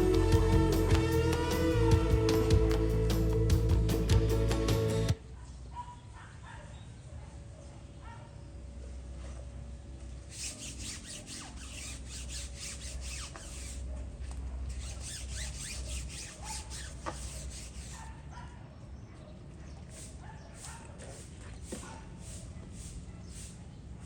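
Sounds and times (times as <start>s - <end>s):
hand rubbing car body: 10.3s - 14.0s, 14.7s - 18.1s.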